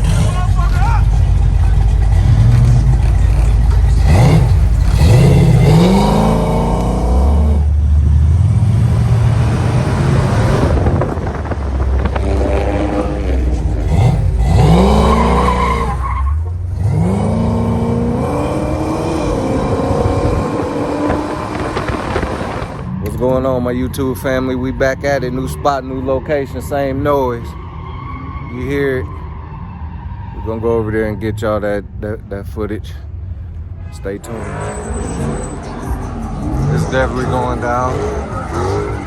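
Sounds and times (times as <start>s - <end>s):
car engines revving hard: 0.0s - 32.0s, 34.2s - 39.0s
tyres screeching: 9.6s - 23.2s, 33.8s - 39.0s.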